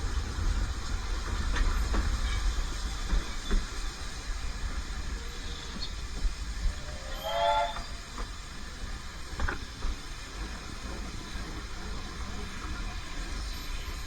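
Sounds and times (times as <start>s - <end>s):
train rumbling: 0.0s - 14.0s
steam locomotive whistle: 6.7s - 8.2s.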